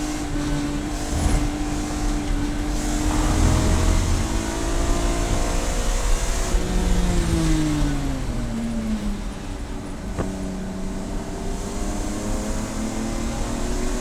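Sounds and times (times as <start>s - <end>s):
race car engine revving: 0.0s - 8.7s.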